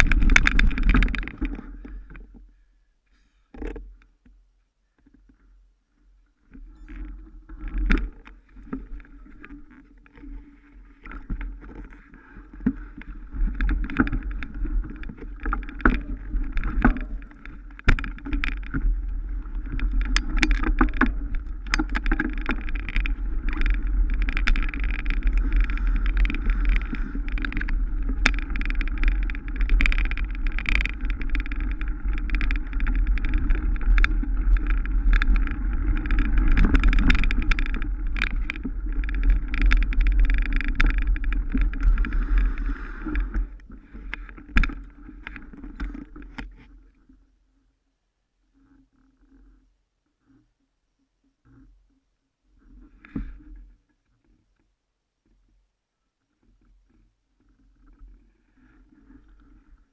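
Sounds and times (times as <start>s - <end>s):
bike tyres on rough trail: 0.0s - 2.6s, 6.7s - 46.7s.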